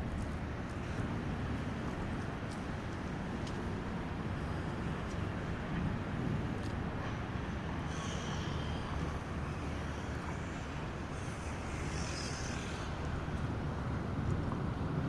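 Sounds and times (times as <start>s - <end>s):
rain hiss: 2.9s - 14.1s.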